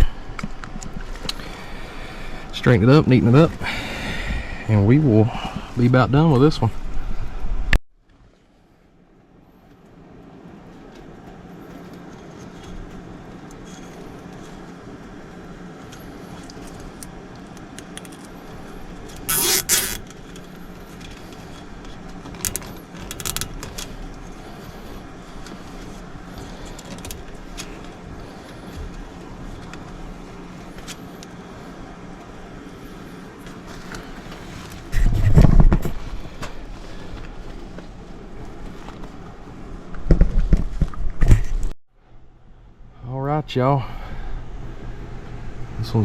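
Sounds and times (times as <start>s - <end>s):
low machine hum: 0.0s - 46.0s
loud rasping noise: 19.2s - 20.0s.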